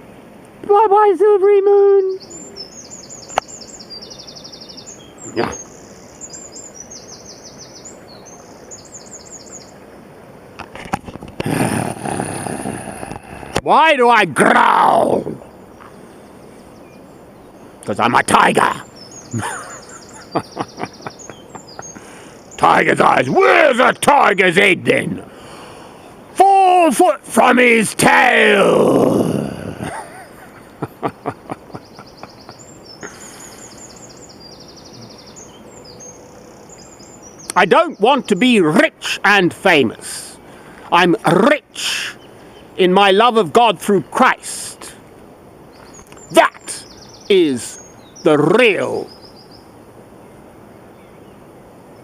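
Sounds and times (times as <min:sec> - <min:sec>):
songbird singing high notes: 0:01.6 - 0:09.8, 0:31.8 - 0:45.0, 0:45.7 - 0:49.8
steady rushing noise: 0:10.0 - 0:15.4.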